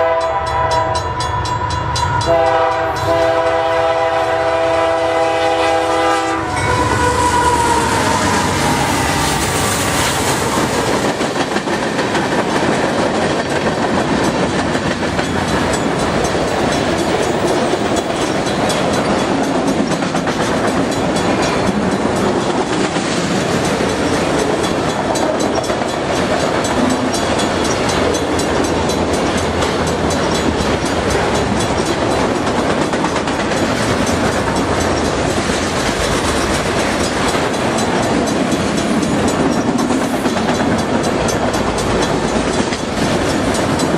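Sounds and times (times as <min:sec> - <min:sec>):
locomotive horn: 0:00.0 - 0:09.5
clickety-clack of train cars: 0:00.0 - 0:43.9
train wheels roaring on rail: 0:00.0 - 0:43.9.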